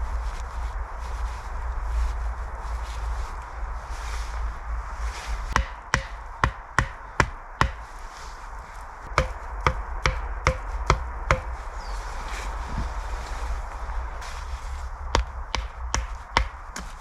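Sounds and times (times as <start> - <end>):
tool striking wood: 5.6 - 7.8, 9.2 - 11.5, 15.2 - 16.9.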